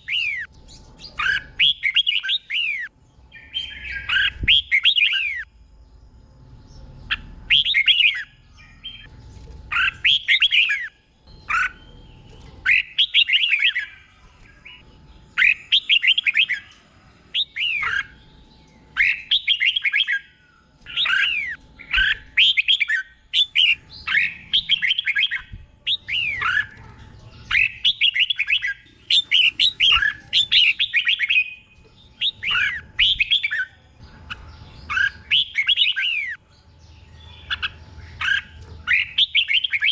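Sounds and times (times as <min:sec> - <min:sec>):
bird warbling phrases: 0:20.9 - 0:31.5.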